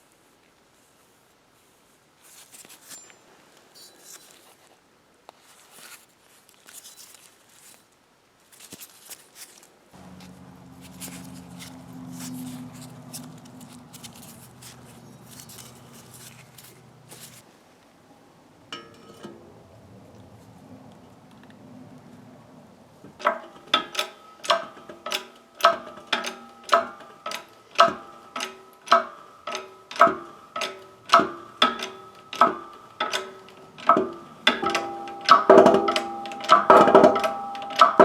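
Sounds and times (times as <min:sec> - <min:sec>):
metal tools clinking: 0:02.7 - 0:04.4, 0:10.0 - 0:17.4
low mechanical hum with clicking: 0:10.0 - 0:17.9, 0:23.0 - 0:38.0
short metallic ring: 0:34.5 - 0:38.0.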